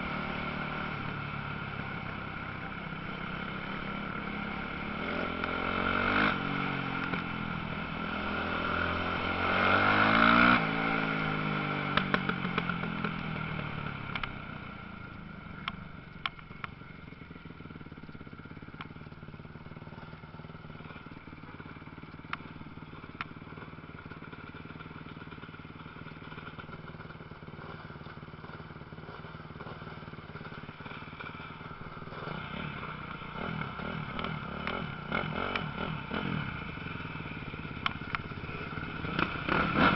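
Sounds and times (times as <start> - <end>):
motocross bike engines revving: 29.0 - 39.9.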